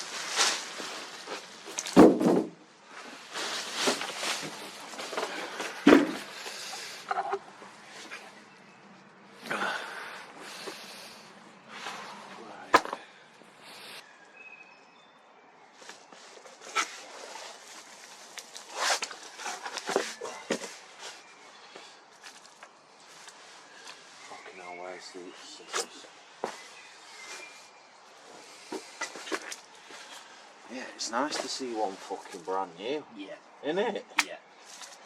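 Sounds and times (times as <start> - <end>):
cardboard rustling and scraping: 0.0 - 8.2, 15.9 - 21.3
knocks: 1.9 - 2.6.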